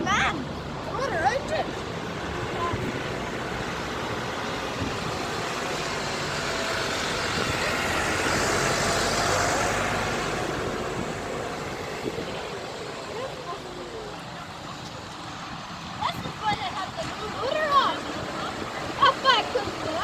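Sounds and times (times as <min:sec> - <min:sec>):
vehicle driving past: 0:00.2 - 0:14.1.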